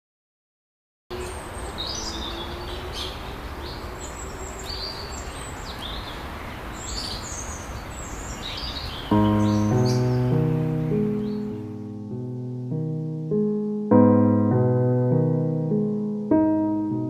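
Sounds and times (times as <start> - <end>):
high bird chirps: 1.1 - 11.8
outdoor background noise: 1.1 - 12.8
piano music: 9.0 - 17.0.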